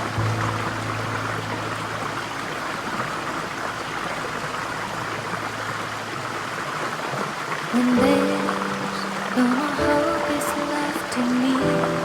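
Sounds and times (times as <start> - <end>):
water rushing in a stream: 0.0 - 12.0.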